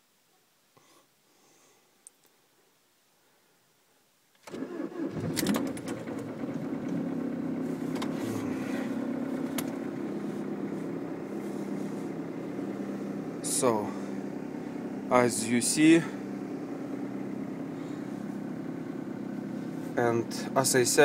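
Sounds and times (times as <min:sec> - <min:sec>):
diesel engine cranking and idling: 0:04.5 - 0:21.0.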